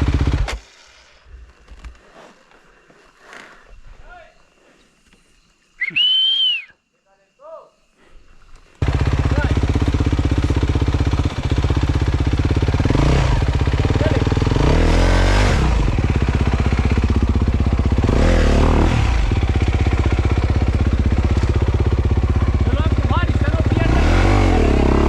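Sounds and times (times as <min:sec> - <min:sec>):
dirt bike engine idling and revving: 0:00.0 - 0:00.6, 0:08.8 - 0:25.0.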